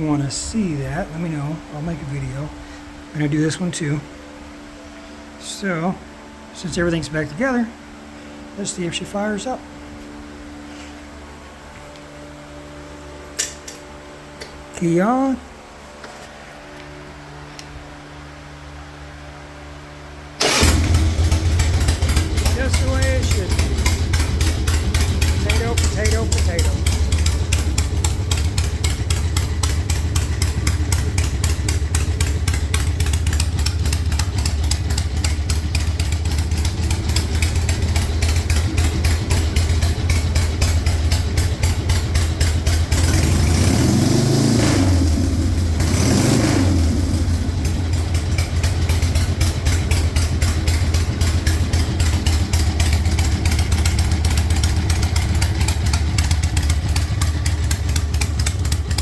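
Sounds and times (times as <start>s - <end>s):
engine throttle blips: 20.3s - 59.0s
motorcycle engine idling: 20.4s - 59.0s.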